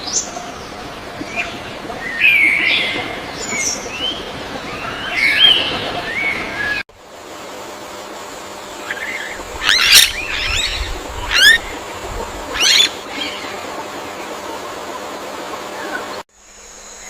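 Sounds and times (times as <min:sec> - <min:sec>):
steady background hiss: 0:00.0 - 0:17.0
bird calls: 0:08.8 - 0:14.4.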